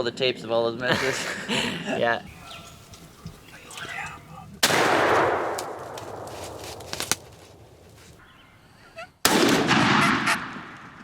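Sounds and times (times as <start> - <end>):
shotgun blasts: 4.6 - 7.3, 9.2 - 11.0.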